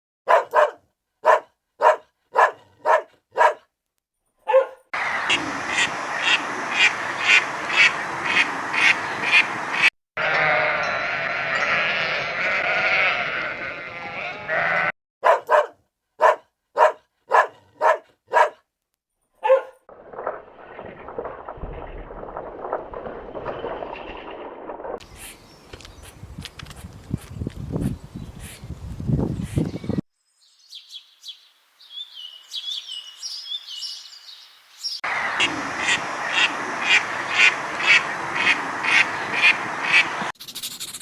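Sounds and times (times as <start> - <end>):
farm animal calls: 10.2 - 18.5.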